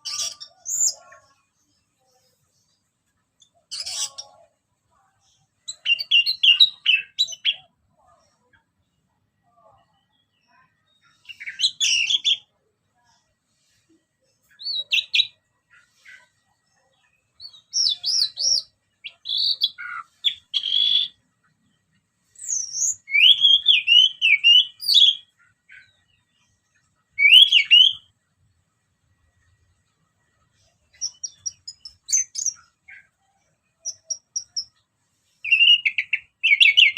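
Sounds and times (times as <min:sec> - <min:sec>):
thrush singing whistled notes: 0:22.4 - 0:25.2, 0:27.2 - 0:28.1, 0:35.4 - 0:36.9.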